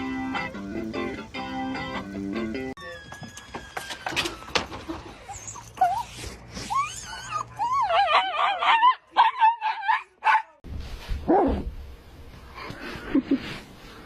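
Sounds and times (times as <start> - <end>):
dog whining and howling: 2.8 - 10.5
dog yelping: 4.0 - 10.6.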